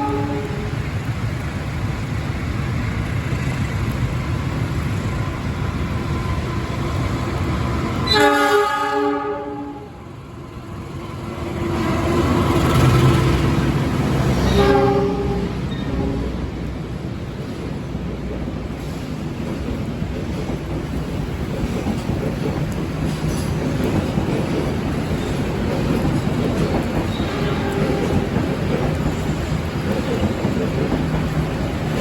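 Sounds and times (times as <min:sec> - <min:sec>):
train horn chord: 0:00.0 - 0:00.7, 0:08.0 - 0:10.0, 0:14.4 - 0:16.4
passing train rumble: 0:00.0 - 0:32.0.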